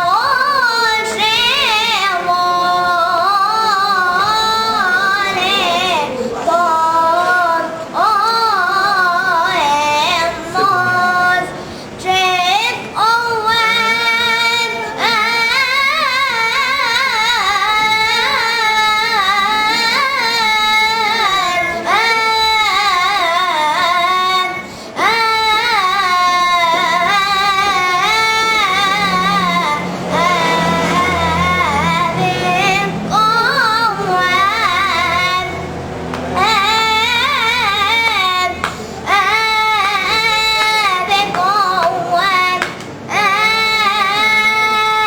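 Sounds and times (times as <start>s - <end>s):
boy singing: 0.0s - 45.0s
low steady drone: 24.9s - 42.2s.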